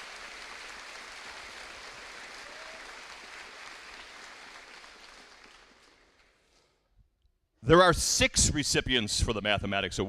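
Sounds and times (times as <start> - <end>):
audience applause: 0.0 - 6.4.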